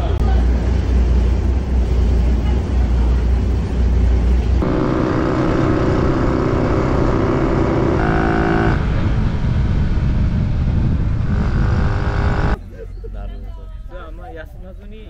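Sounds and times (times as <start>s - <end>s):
motorcycle engine running: 4.6s - 12.6s.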